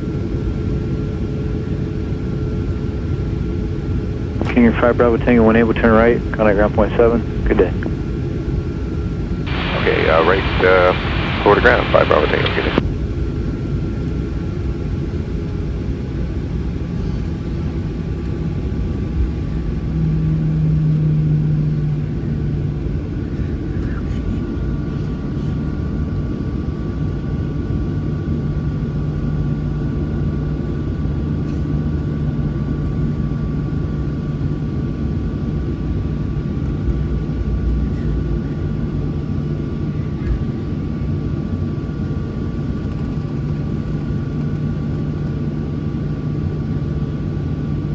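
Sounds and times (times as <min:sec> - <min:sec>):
faint steady whine: 0:04.2 - 0:12.8
jet engines idling: 0:04.3 - 0:08.4, 0:09.2 - 0:12.8.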